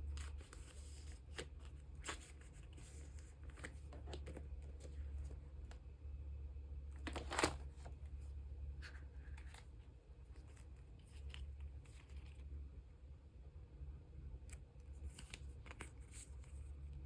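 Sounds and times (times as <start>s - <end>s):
plastic sleeves rustling: 0.0s - 5.8s, 6.9s - 12.5s.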